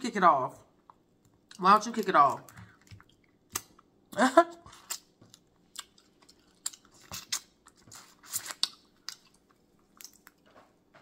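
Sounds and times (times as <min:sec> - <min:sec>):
chewing clicks and crunches: 0:04.7 - 0:10.6.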